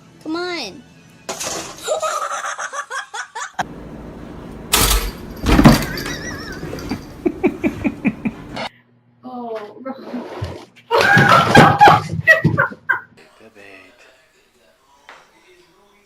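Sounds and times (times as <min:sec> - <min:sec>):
person laughing: 0:05.9 - 0:08.7.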